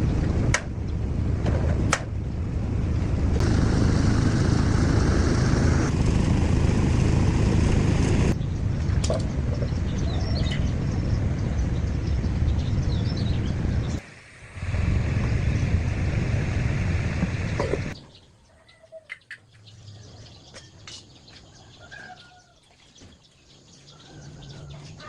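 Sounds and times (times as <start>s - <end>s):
tractor engine rumbling: 0.0s - 14.0s, 14.6s - 18.0s.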